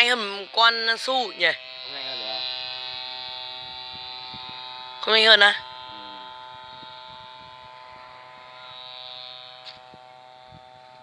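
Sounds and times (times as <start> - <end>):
model airplane engine buzzing: 0.0 - 11.0.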